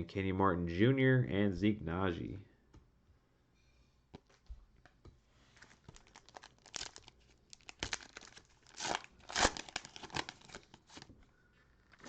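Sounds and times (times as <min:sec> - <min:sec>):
cellophane crinkling: 0:05.5 - 0:12.0
cellophane tearing: 0:05.6 - 0:11.1.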